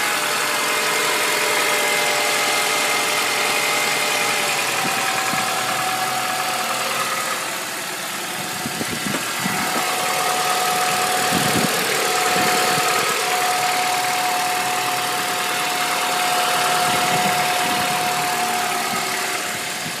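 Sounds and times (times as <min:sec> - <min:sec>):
car engine idling with whine: 0:00.0 - 0:20.0.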